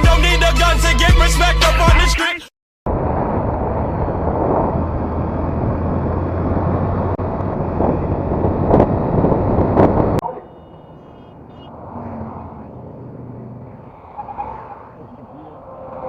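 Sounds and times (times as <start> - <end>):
wind buffeting microphone: 2.9 - 10.2
road noise: 2.9 - 16.0
vehicle engine hum: 2.9 - 16.0.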